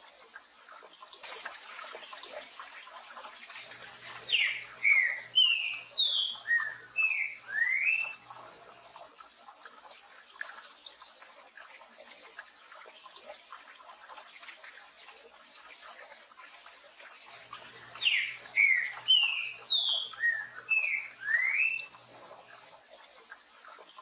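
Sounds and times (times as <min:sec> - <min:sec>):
bird singing slurred whistles: 0:04.3 - 0:08.2, 0:18.0 - 0:22.0.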